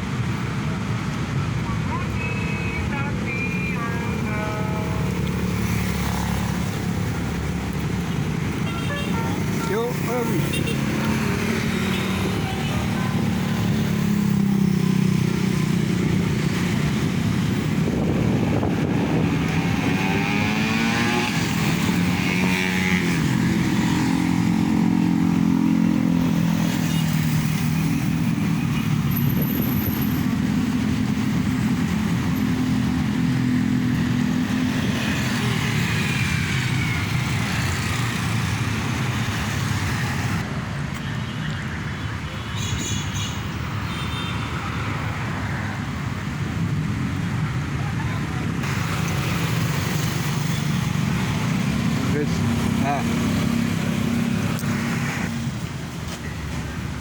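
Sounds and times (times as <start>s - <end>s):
vehicle sweeping past: 13.6s - 28.2s.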